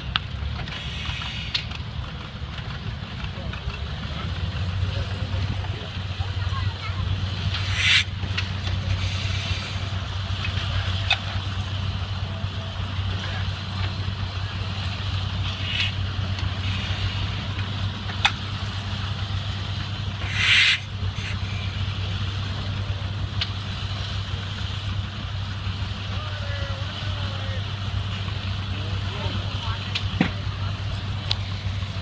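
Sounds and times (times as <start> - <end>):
tractor engine running: 0.0 - 32.0
short hiss: 0.7 - 1.7, 7.6 - 8.1, 9.0 - 9.8, 15.5 - 16.0, 16.6 - 17.4, 20.2 - 21.7.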